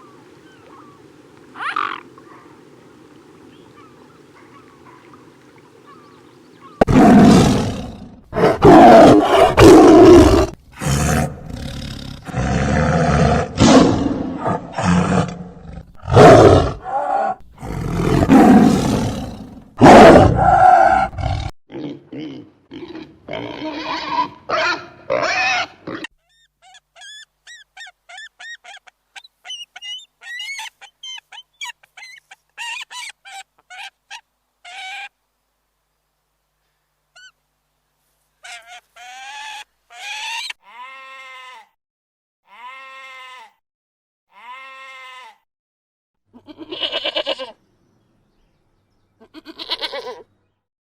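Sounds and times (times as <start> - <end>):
deep farm animal calls: 38.4 - 41.7, 42.5 - 43.6, 44.3 - 45.4, 46.4 - 47.6, 49.2 - 50.3.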